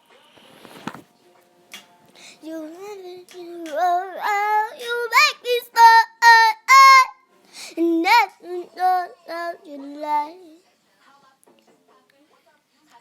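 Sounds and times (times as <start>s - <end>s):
girl singing unaccompanied: 1.8s - 10.6s.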